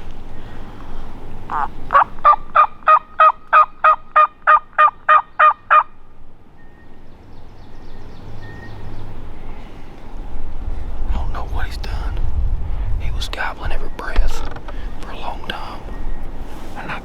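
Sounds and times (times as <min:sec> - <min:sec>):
turkey call hen yelps: 0:01.5 - 0:06.0.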